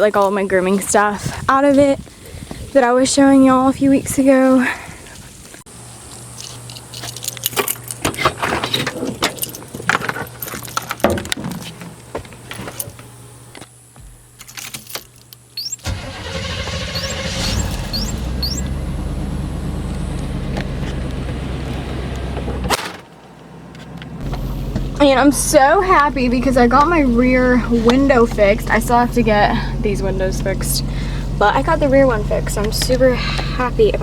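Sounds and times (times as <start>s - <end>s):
keys jangling: 6.4s - 8.0s, 9.2s - 11.6s
truck engine starting and running: 15.6s - 34.0s.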